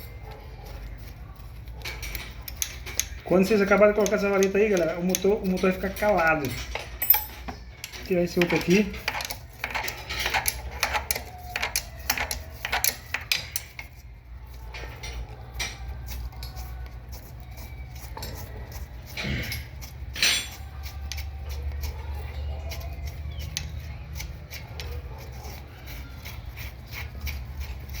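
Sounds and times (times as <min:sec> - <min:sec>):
metal tools clinking: 0:01.4 - 0:16.8, 0:17.5 - 0:21.6.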